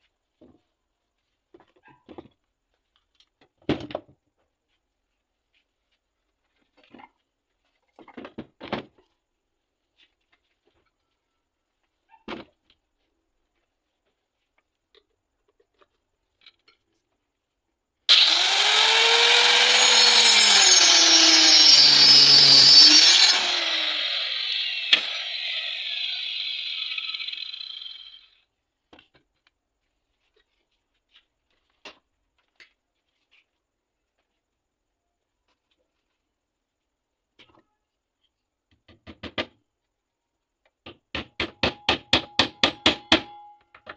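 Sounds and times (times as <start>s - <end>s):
motorized saw cutting: 18.1s - 28.3s.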